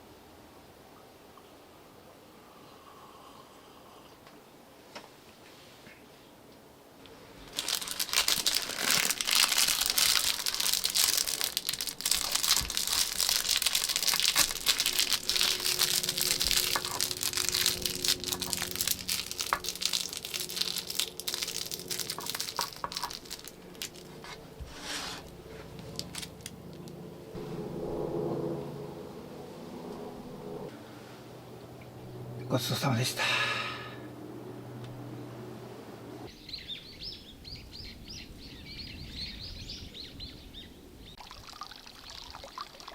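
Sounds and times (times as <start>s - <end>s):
packaging being crumpled by hand: 7.4s - 27.0s.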